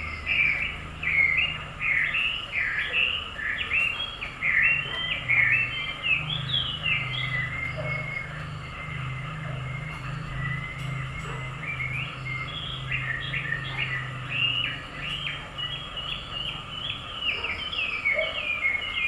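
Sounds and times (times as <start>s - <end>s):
small bird chirping: 0.0s - 19.0s.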